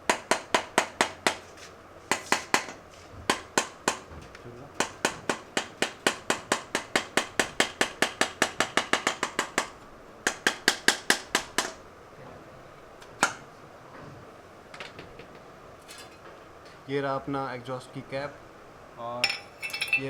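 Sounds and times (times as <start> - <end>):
hammer tapping on metal: 0.0 - 1.4, 2.1 - 4.1, 4.8 - 11.8.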